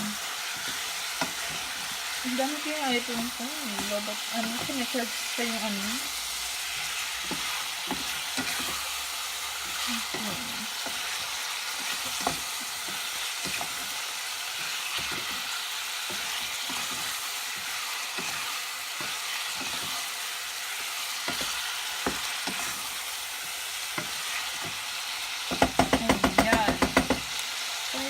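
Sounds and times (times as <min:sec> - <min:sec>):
food sizzling in a pan: 0:00.0 - 0:28.0
utensil knocking against pan: 0:25.5 - 0:27.3.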